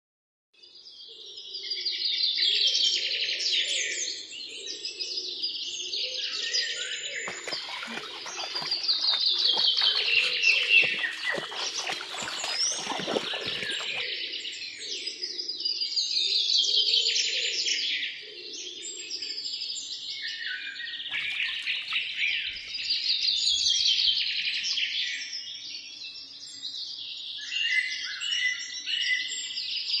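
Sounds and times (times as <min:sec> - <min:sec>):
songbirds trilling: 0:06.8 - 0:15.3, 0:20.6 - 0:25.5.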